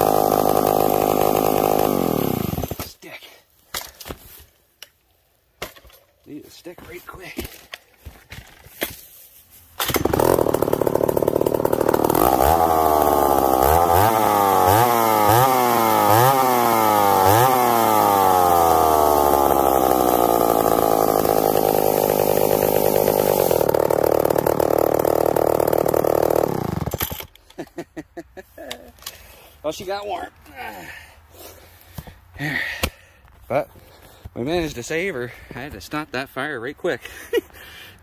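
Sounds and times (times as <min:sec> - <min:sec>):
chainsaw engine revving: 0:00.0 - 0:02.9, 0:09.8 - 0:27.3.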